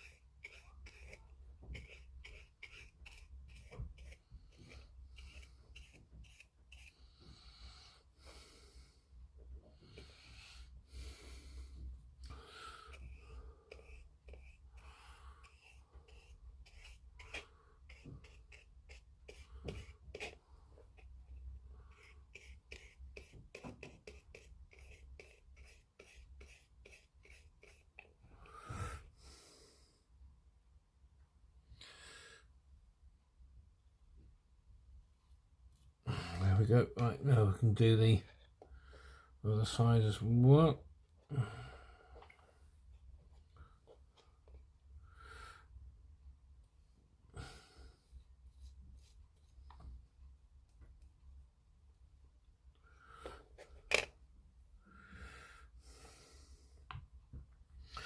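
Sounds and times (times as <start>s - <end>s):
paintbrush strokes on plastic: 0.0s - 8.8s, 9.7s - 29.2s, 48.1s - 51.0s.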